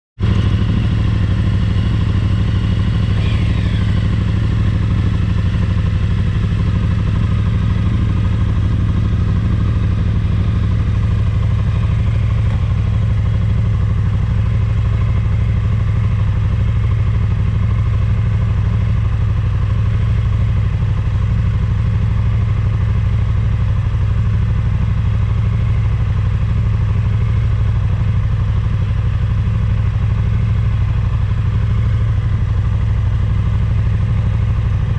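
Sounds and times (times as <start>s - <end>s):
motorcycle engine running: 0.2s - 34.9s.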